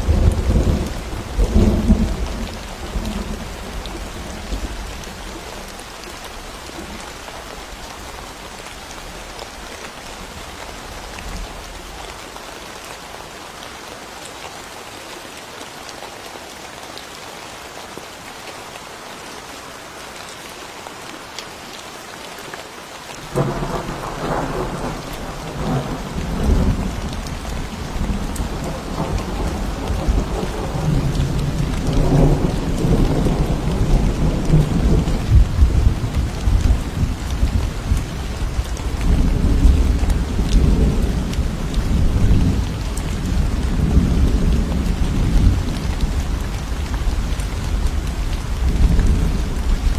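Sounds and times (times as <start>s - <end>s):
thunder: 0.0s - 3.5s, 23.3s - 38.1s
steady rain: 0.0s - 49.9s.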